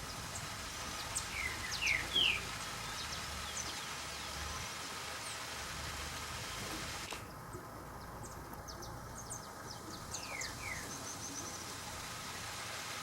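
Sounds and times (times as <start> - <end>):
small birds chirping: 0.0 - 4.6, 7.3 - 12.0
steady hiss: 0.0 - 7.4, 9.7 - 13.0.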